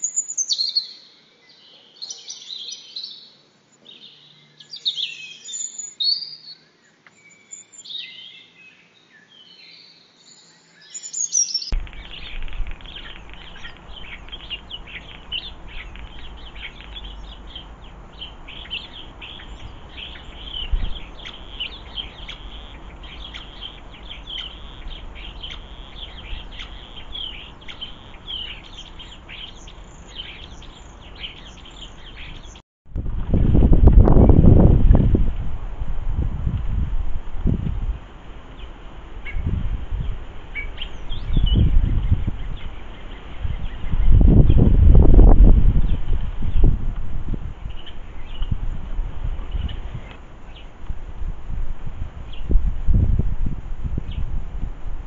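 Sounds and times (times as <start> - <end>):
birdsong with sweeping calls: 0.0 - 32.6, 38.3 - 53.2, 53.9 - 54.4
small birds chirping rapidly: 0.0 - 32.6, 38.5 - 46.9, 47.6 - 50.8
steady low rumble: 11.7 - 55.0.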